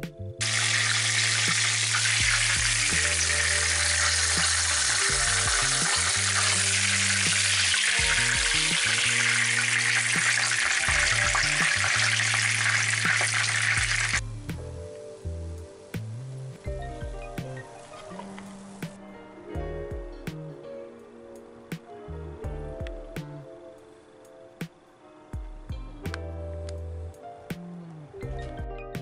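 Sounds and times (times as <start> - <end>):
food frying in hot oil: 0.4 - 14.6.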